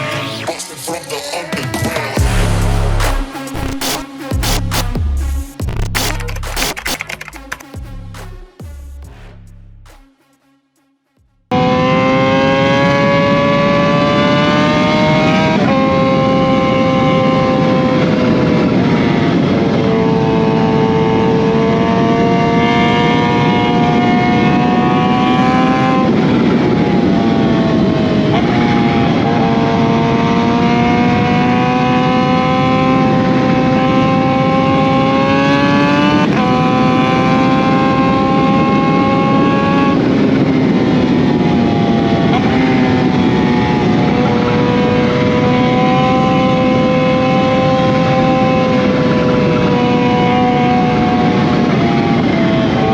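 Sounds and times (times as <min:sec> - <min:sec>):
motorcycle engine revving: 0:02.2 - 0:10.2, 0:11.5 - 0:52.1
wind noise: 0:32.4 - 0:52.9.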